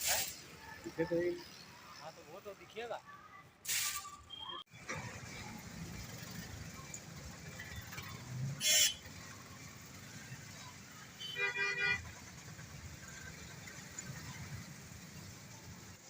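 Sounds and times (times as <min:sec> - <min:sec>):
short hissing burst: 0:00.0 - 0:00.5, 0:03.6 - 0:04.3
street traffic rumble: 0:00.0 - 0:16.0
vehicle horn honking: 0:08.6 - 0:09.1, 0:11.2 - 0:12.0.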